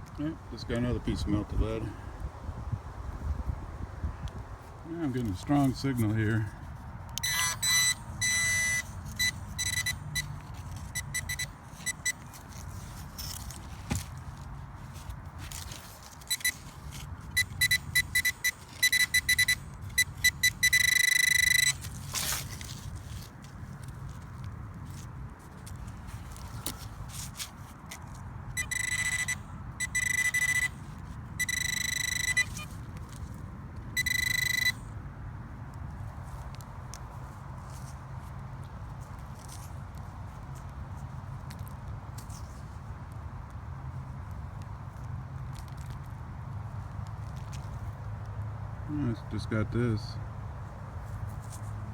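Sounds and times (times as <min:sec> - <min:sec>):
wind rumble on microphone: 0:00.0 - 0:05.0
metal detector beeping: 0:07.2 - 0:14.1, 0:15.5 - 0:22.8, 0:28.5 - 0:35.0.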